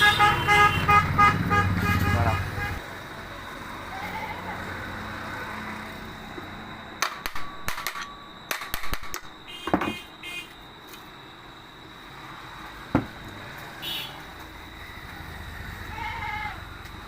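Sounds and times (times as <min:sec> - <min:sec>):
metal parts clicking and knocking: 0:07.0 - 0:10.0.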